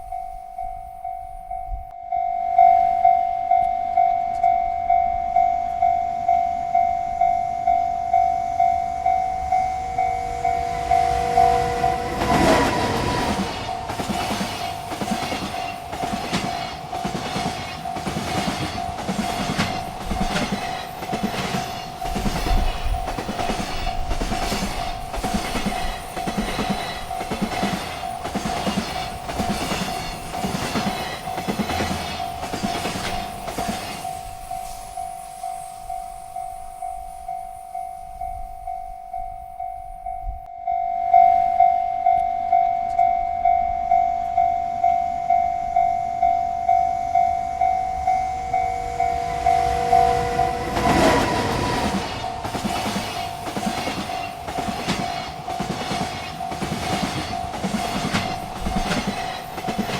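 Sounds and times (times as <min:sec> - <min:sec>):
railroad crossing bell ringing: 0:00.0 - 0:59.9
train wheels clicking over rails: 0:08.7 - 0:35.4, 0:47.5 - 0:59.9.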